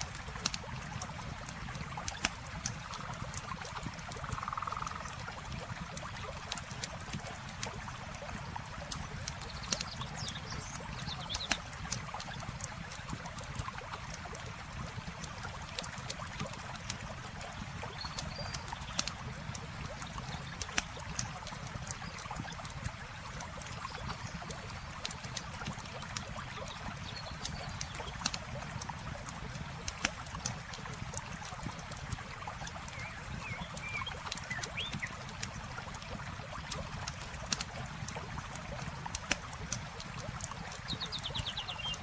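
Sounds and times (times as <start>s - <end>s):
campfire crackling: 0.0s - 41.3s
running water: 0.0s - 42.0s.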